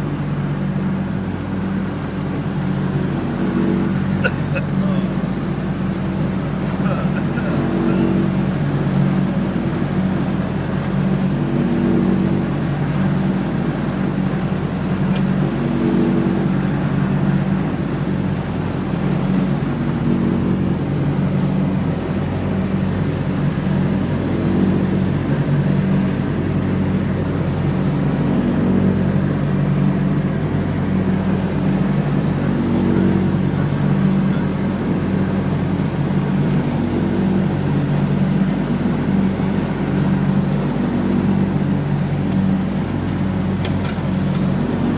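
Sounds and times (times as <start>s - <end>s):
lawn tractor engine running: 32.4s - 44.9s.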